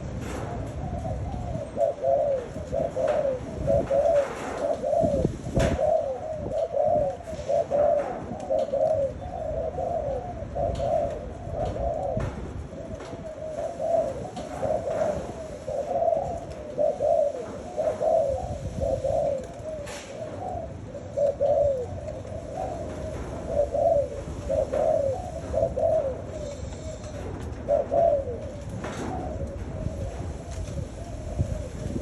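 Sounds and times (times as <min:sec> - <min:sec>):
dove cooing: 0:00.0 - 0:32.0.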